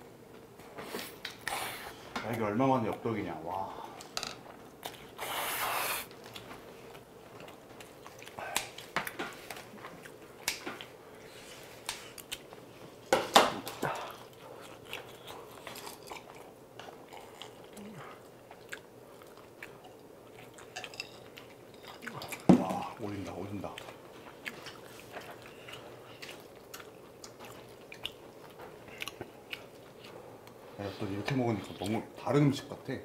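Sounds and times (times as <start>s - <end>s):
person chewing food: 4.5s - 30.6s.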